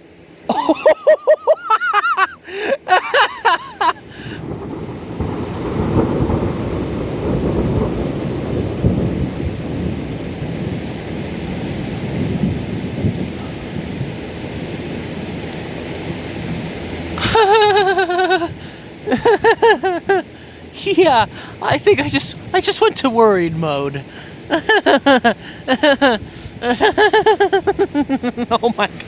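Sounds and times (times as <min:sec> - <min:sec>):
person vocalizing: 0:00.5 - 0:04.4, 0:17.2 - 0:21.5, 0:24.0 - 0:29.0
rolling thunder: 0:04.4 - 0:16.6.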